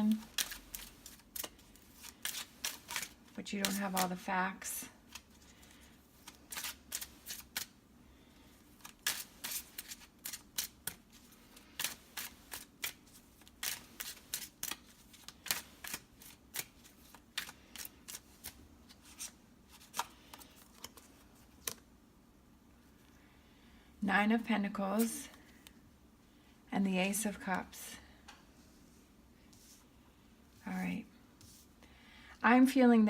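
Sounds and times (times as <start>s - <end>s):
cards being shuffled: 0.0s - 4.3s, 5.1s - 7.8s, 8.7s - 21.8s.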